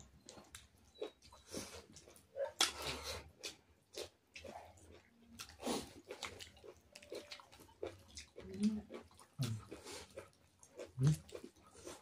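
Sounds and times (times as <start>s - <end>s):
people chewing and biting: 0.0s - 12.0s
mouth noises: 11.0s - 11.3s.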